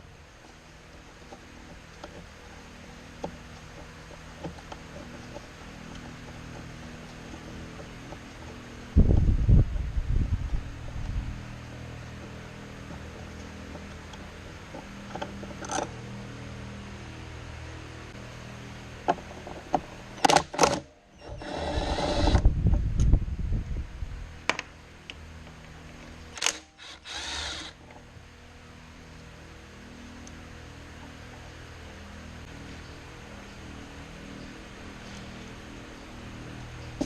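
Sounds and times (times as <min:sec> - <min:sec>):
steady low hum: 0:00.0 - 0:37.0
power tool running: 0:20.2 - 0:22.6, 0:26.3 - 0:28.2.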